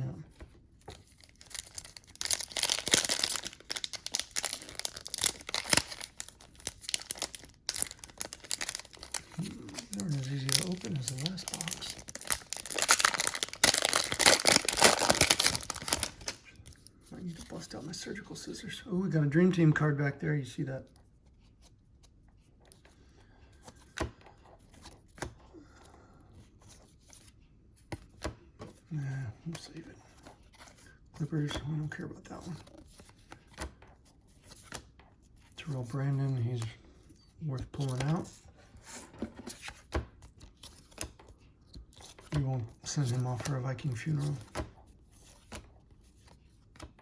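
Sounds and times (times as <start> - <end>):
trading cards rustling: 0.3 - 18.4, 41.9 - 47.0
foil wrapper tearing and crinkling: 1.2 - 16.4.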